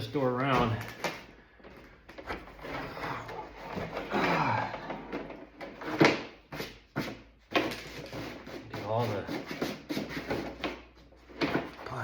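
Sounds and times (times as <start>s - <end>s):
plastic panel scraping and rubbing: 5.0s - 12.0s.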